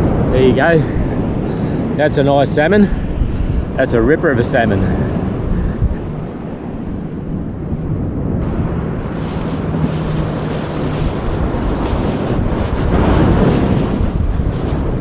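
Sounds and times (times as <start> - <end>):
wind buffeting microphone: 0.0 - 15.0
surf washing: 8.4 - 15.0.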